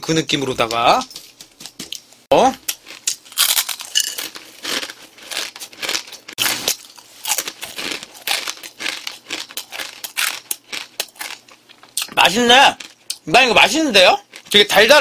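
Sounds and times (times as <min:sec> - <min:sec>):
crunching dry noodles: 0:02.7 - 0:12.2.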